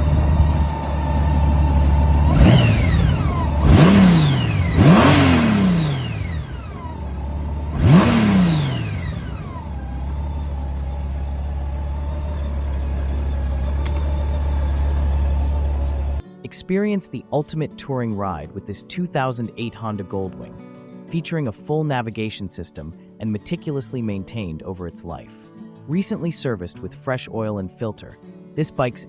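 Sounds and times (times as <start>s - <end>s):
motorcycle engine idling and revving: 0.0s - 16.2s.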